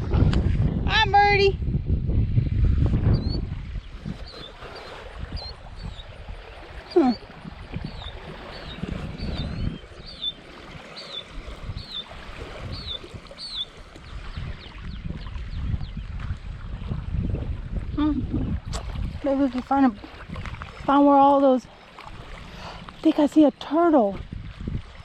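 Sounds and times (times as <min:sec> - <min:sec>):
wind rumble: 0:00.0 - 0:25.0
small bird chirping: 0:07.8 - 0:10.4, 0:11.0 - 0:12.1, 0:12.7 - 0:13.7.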